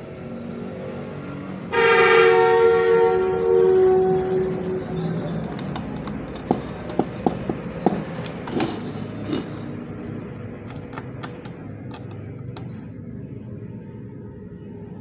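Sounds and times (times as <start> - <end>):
clicks of small objects handled: 5.5 - 9.8, 10.6 - 12.9.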